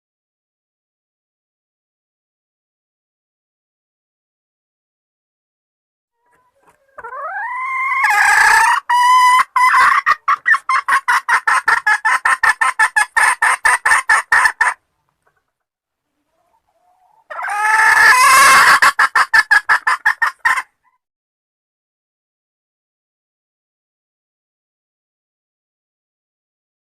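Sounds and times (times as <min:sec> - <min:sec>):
junglefowl hen calling: 0:06.2 - 0:15.4, 0:16.1 - 0:21.0.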